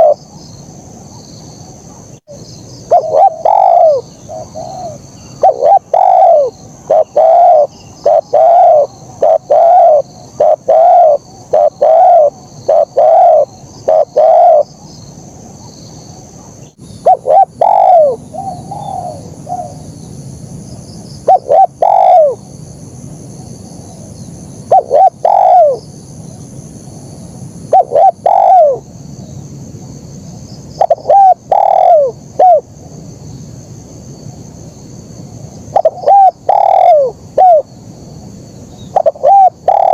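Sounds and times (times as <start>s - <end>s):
dove cooing: 0.0s - 0.2s, 2.9s - 14.7s, 16.4s - 19.8s, 21.2s - 22.4s, 24.7s - 25.9s, 27.7s - 28.8s, 30.8s - 32.7s, 35.7s - 37.7s, 38.8s - 39.9s.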